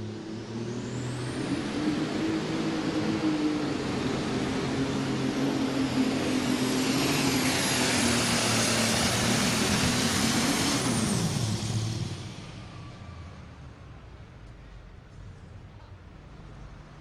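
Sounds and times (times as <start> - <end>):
tractor engine at full throttle: 0.0 - 12.8.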